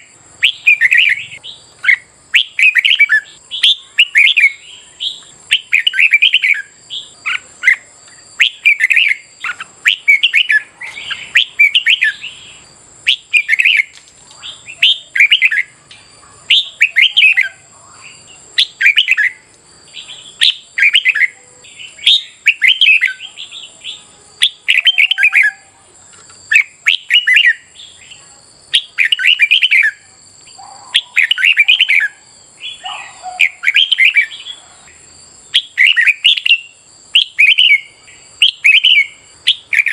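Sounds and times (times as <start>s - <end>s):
bird singing warbled phrases: 0.0s - 39.9s.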